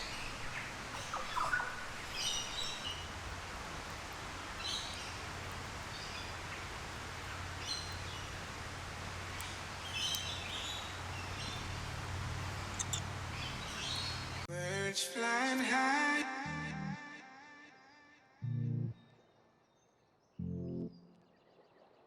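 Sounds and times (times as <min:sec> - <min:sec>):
birds chirping: 0:00.0 - 0:14.5.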